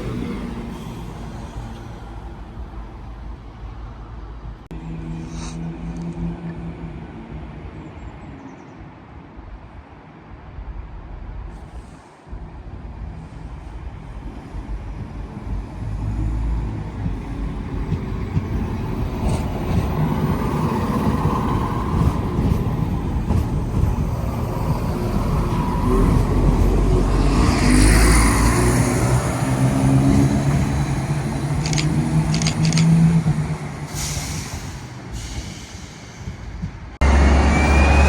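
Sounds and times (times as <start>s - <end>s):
diesel train engine running: 10.7s - 38.0s
sharp ticks: 31.6s - 33.0s
rush of hiss: 33.9s - 36.6s.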